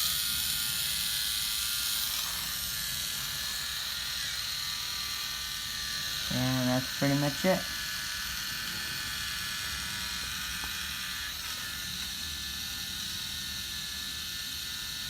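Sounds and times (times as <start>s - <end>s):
small electric motor whirring: 0.0s - 15.0s.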